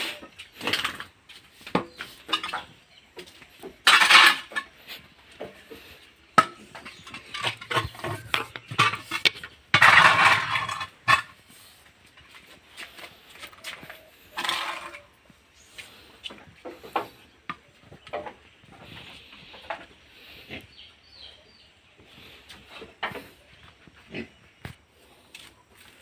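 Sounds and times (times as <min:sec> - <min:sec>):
metal hoe scraping floor: 0:00.0 - 0:20.5
clinks and knocks: 0:01.7 - 0:04.8, 0:05.4 - 0:11.4.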